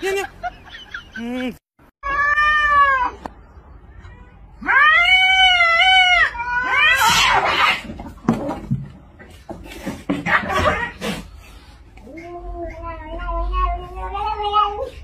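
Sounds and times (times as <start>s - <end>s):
cat yowling: 4.6s - 7.8s.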